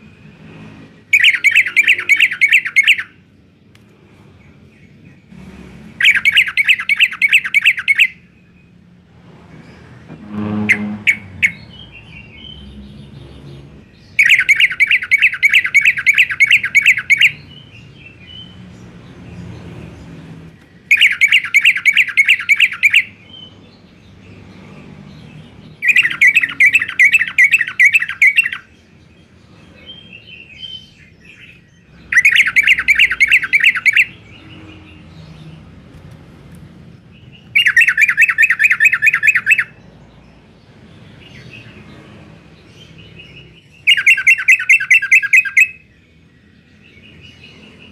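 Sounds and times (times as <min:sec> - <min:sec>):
bulbul chirping: 0:01.1 - 0:03.2, 0:06.0 - 0:08.2, 0:10.6 - 0:12.8, 0:14.1 - 0:17.5, 0:20.9 - 0:23.1, 0:25.8 - 0:28.7, 0:31.4 - 0:34.5, 0:37.4 - 0:39.8, 0:43.8 - 0:45.9.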